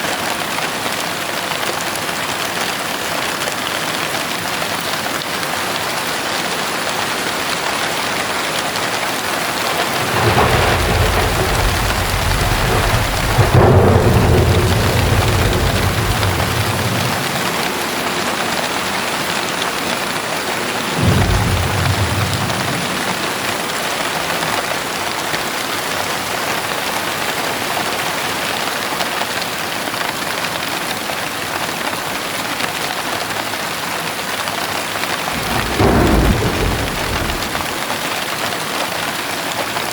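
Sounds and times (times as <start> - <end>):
heavy rain: 0.0 - 39.9
thunder rumbling: 8.8 - 24.3, 35.2 - 38.0.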